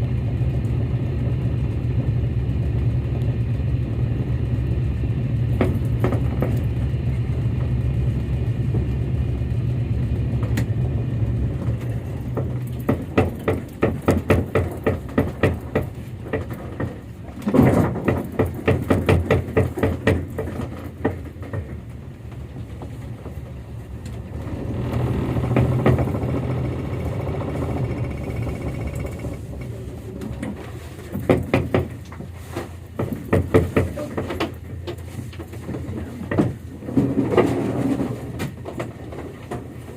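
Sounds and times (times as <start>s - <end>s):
boat engine humming: 0.0s - 39.9s
quick regular knocks: 12.2s - 21.8s, 31.1s - 32.3s, 32.9s - 35.0s.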